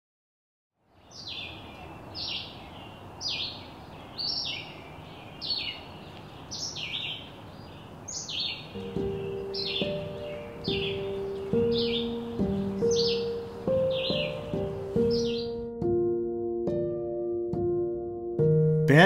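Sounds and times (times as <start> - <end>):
steady outdoor hiss: 0.8 - 16.0
songbird calling: 0.9 - 15.7
sustained music notes: 8.8 - 19.0.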